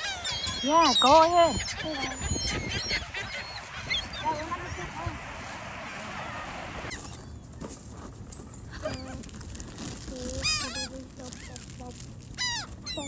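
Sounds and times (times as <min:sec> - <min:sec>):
low flat squawks: 0:00.0 - 0:07.2
birds harsh calls: 0:00.0 - 0:07.4.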